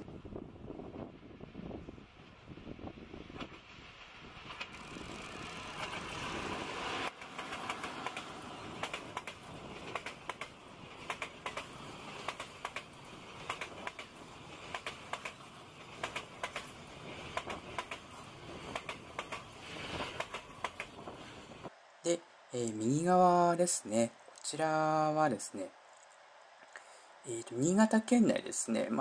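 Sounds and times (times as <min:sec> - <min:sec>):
train rushing past: 0:00.9 - 0:21.7
wheels clacking over rail joints: 0:03.3 - 0:21.7.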